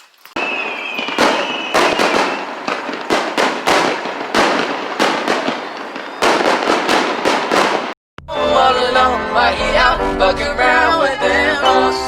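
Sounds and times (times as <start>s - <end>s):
fireworks crackling and bangs: 0.0s - 8.0s
thin firework whistle: 0.4s - 3.2s, 5.5s - 6.5s.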